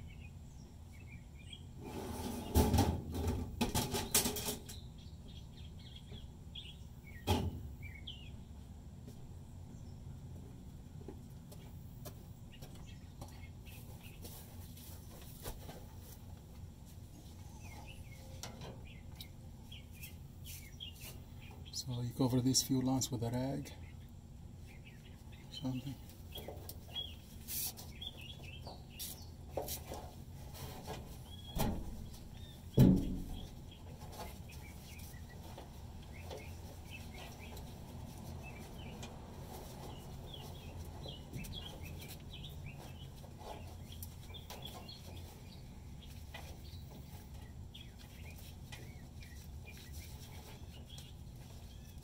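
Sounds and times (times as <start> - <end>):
birds chirping: 0.0 - 2.6, 3.8 - 52.0
steady low hum: 0.0 - 52.0
sharp knocks: 32.7 - 33.5.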